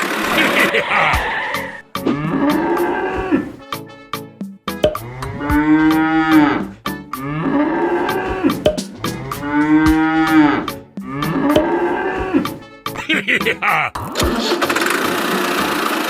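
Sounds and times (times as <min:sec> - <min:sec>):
sharp repeated clicking: 0:04.8 - 0:05.0, 0:08.7 - 0:09.0.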